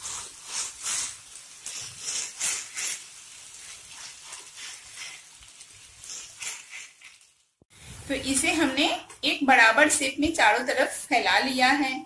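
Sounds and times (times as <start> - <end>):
batter sizzling in hot oil: 0.0 - 11.8.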